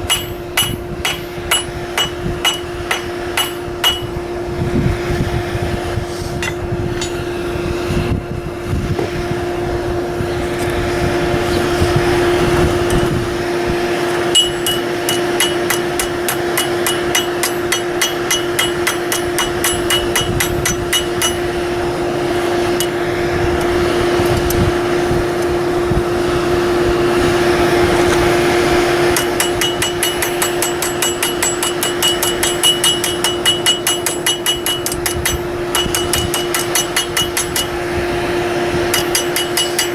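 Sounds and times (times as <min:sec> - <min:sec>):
hammer ringing on anvil: 0:00.0 - 0:04.2, 0:06.4 - 0:07.4, 0:14.1 - 0:21.8, 0:22.6 - 0:23.1, 0:29.1 - 0:38.1, 0:38.7 - 0:39.9
steady hum: 0:00.0 - 0:39.9.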